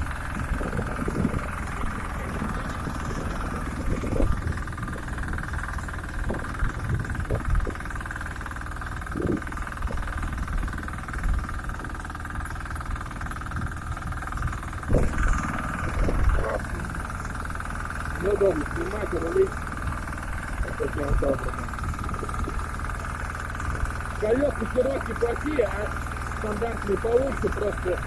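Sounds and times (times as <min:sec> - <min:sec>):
machine knocking and rattling: 0:00.0 - 0:28.0
tractor engine under load: 0:00.0 - 0:28.0.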